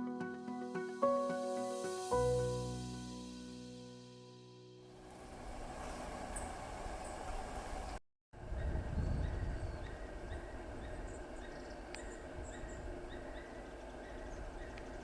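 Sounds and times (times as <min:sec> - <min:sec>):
wind buffeting microphone: 0:05.1 - 0:15.0
small birds chirping: 0:06.3 - 0:15.0.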